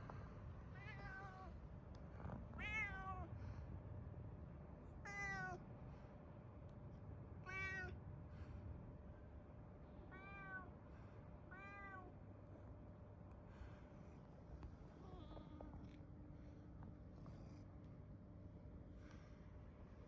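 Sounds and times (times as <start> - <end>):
cat meowing: 0.8 - 1.5, 2.6 - 3.3, 5.0 - 5.6, 7.4 - 8.0, 10.1 - 10.7, 11.5 - 12.1.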